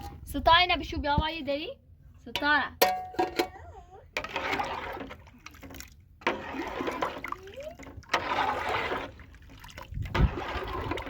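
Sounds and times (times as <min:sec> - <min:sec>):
water pouring and splashing: 0:04.2 - 0:11.0.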